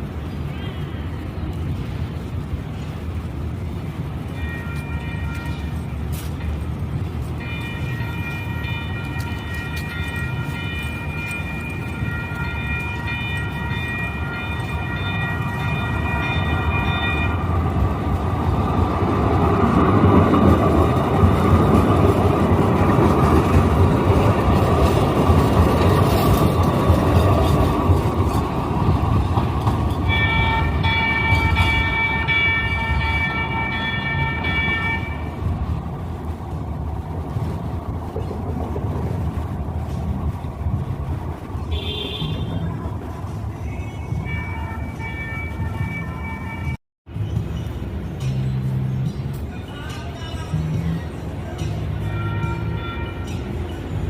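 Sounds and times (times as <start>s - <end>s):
train wheels on rails: 0.0s - 54.0s
train horn blast: 4.4s - 5.8s, 7.4s - 17.5s, 30.1s - 35.4s, 41.7s - 42.7s, 52.0s - 53.8s.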